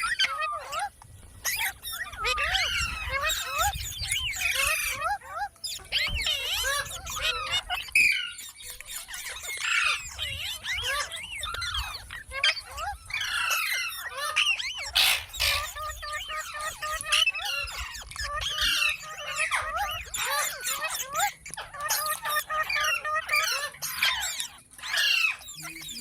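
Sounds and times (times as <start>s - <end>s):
parakeet chirping and squawking: 0.0s - 26.0s.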